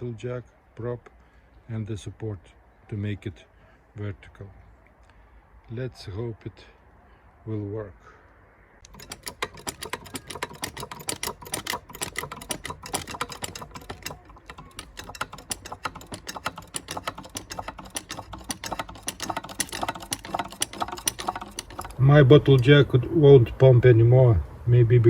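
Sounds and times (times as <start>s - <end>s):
bottle jack clicking: 8.8s - 22.7s.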